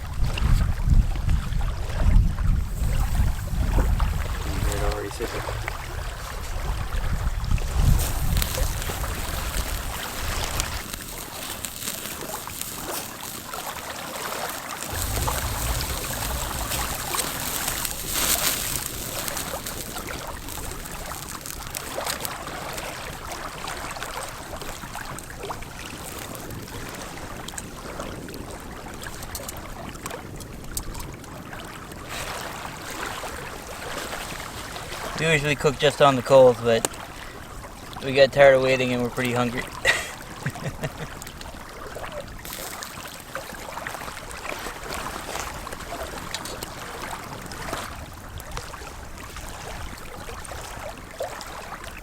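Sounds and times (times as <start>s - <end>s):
wind buffeting microphone: 0.0s - 13.8s, 14.8s - 36.0s.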